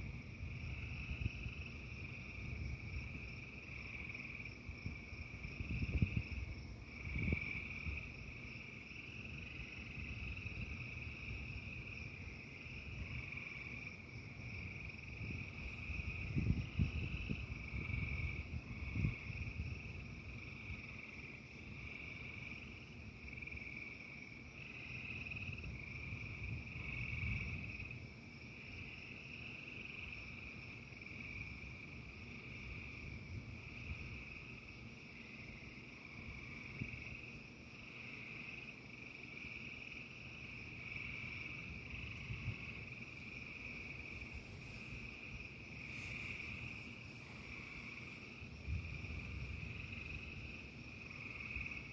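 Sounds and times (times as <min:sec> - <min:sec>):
frog chorus trilling: 0:37.9 - 0:51.9.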